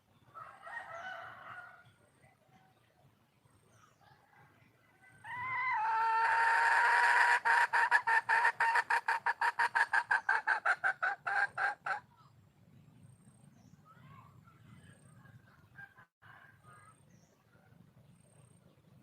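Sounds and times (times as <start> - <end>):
junglefowl hen calling: 5.0 - 12.1.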